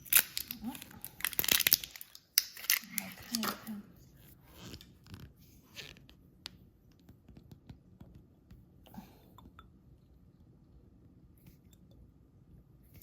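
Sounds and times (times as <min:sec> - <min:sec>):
packaging rustling and clicking: 0:00.0 - 0:03.7.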